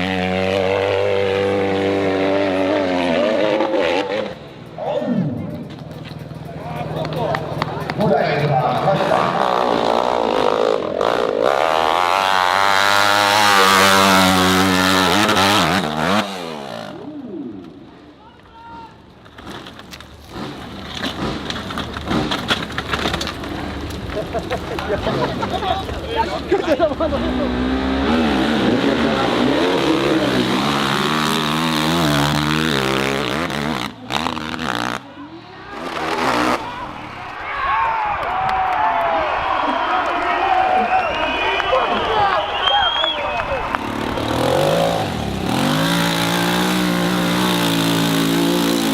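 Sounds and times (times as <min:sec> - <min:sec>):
dirt bike engine revving: 0:00.0 - 0:05.4, 0:06.2 - 0:17.6, 0:24.9 - 0:35.0, 0:35.7 - 0:36.9, 0:43.6 - 0:48.9.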